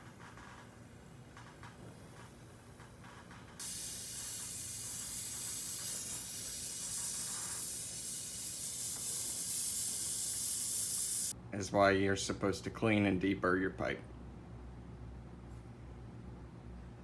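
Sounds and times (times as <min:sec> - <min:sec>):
gas hissing from refrigerant line: 0:00.0 - 0:11.4.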